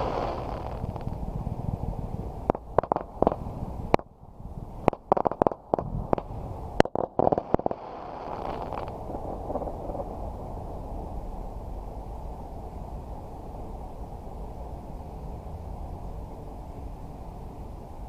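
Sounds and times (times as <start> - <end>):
fireworks bangs and cracks: 0.0 - 1.2, 2.5 - 4.1, 4.8 - 10.2
steady background noise: 0.0 - 18.0.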